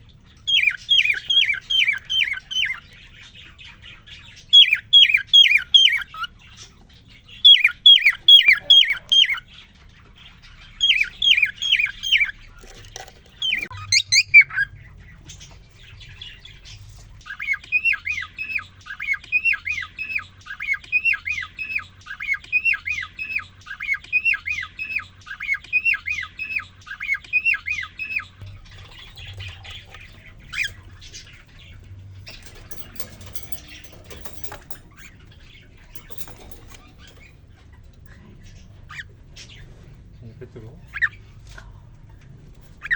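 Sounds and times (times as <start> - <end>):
cockatiel whistling song: 4.6 - 6.3, 7.5 - 9.4, 13.4 - 14.7.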